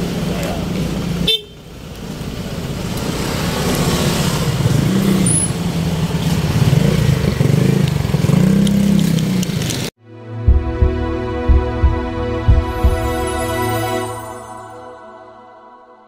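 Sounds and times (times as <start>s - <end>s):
street traffic: 0.0s - 10.0s.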